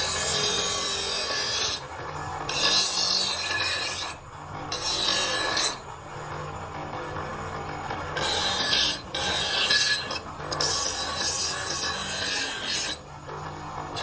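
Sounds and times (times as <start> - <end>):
metal blade being filed: 0.0 - 1.9, 2.5 - 5.8, 8.2 - 13.0.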